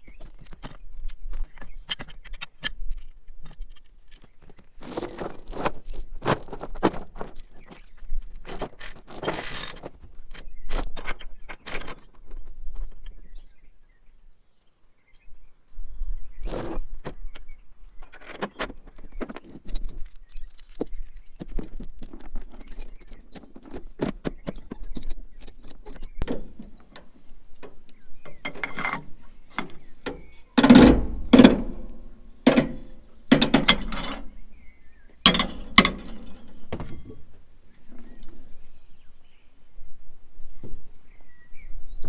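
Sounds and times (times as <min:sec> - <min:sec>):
metallic ratcheting and clinking: 0:28.3 - 0:34.4
loud metal clanks: 0:28.3 - 0:37.4.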